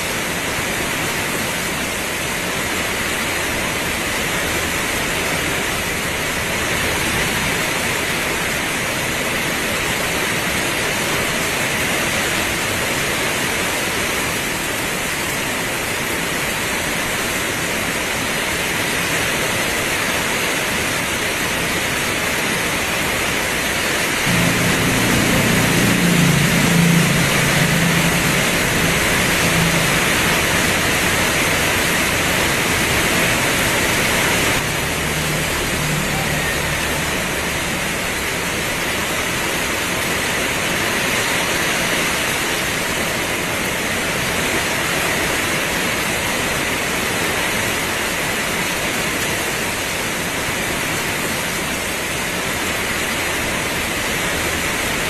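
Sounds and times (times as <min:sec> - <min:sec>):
heavy rain pouring: 0:00.0 - 0:55.0
low wavering hum: 0:24.3 - 0:31.4.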